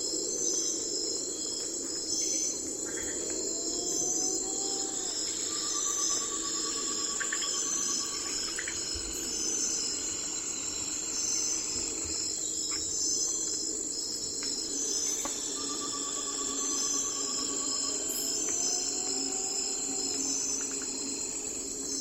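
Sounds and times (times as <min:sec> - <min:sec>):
crickets and insects trilling: 0:00.0 - 0:22.0
lower rapid insect trill: 0:00.0 - 0:22.0.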